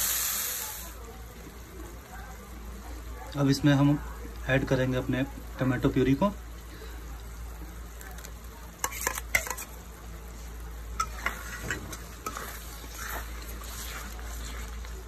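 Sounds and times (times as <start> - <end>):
paste sizzling in oil: 0.0 - 2.6, 3.4 - 15.0
wooden spatula scraping a wok: 8.8 - 15.0.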